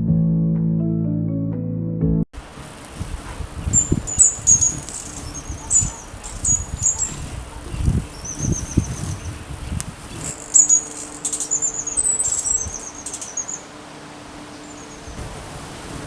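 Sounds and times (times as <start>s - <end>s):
hummingbird twittering chirps: 2.6s - 15.2s.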